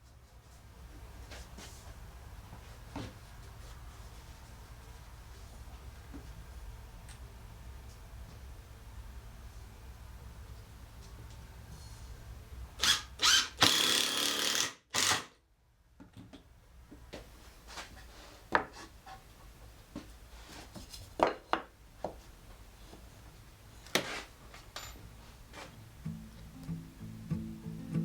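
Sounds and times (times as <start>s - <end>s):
power drill running: 12.8s - 15.3s.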